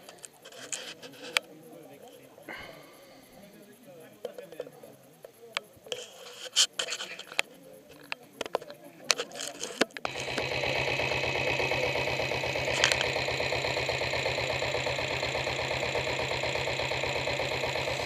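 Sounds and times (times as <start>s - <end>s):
diesel motorcycle engine idling: 10.1s - 18.0s.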